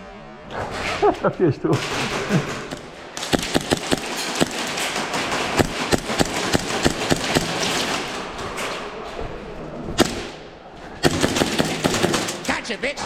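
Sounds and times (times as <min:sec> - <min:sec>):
sharp clicks and knocks: 0:01.8 - 0:08.9.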